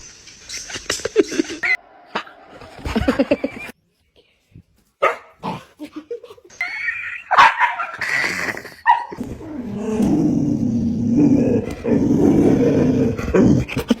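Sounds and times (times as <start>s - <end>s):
dog yelping: 7.3s - 8.1s, 8.8s - 9.2s
dog growling: 8.0s - 14.0s.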